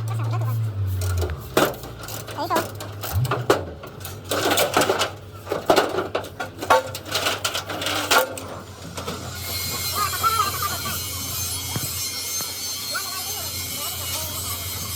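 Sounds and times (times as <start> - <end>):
knocks and clatter on metal: 1.0 - 9.9
steady low hum: 2.9 - 4.2.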